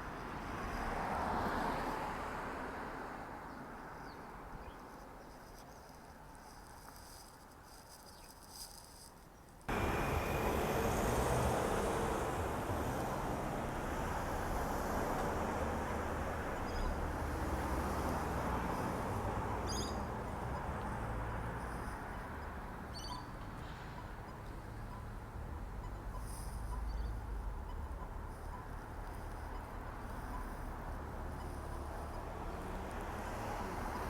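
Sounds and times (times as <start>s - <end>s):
high bird chirps: 19.6s - 20.1s, 22.9s - 23.3s.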